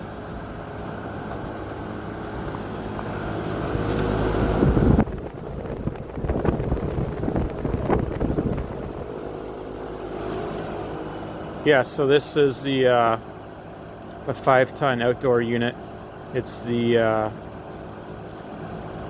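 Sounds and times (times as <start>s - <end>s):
heating equipment humming: 0.0s - 19.0s
wind noise on microphone: 3.1s - 9.5s.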